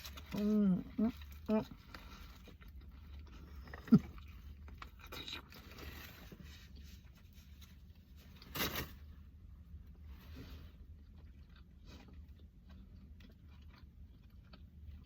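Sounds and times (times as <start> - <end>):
mouth noises while eating: 0.0 - 7.4
rustling scrape: 5.6 - 9.1, 10.0 - 10.8.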